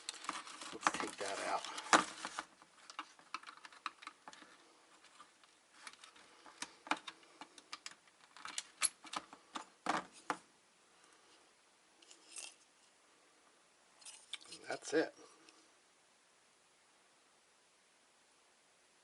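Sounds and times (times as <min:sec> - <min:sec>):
plastic and metal parts clicking: 0:00.0 - 0:10.4.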